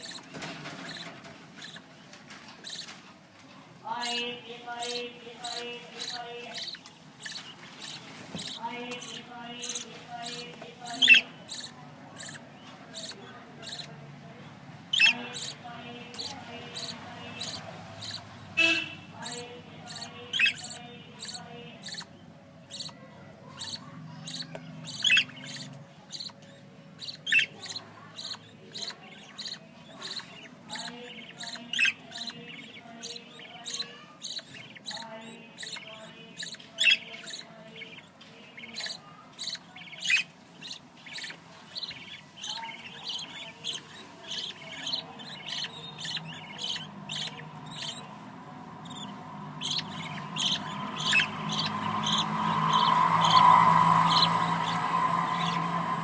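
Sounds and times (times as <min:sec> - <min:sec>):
budgerigars chirping and chattering: 0:00.0 - 0:56.0.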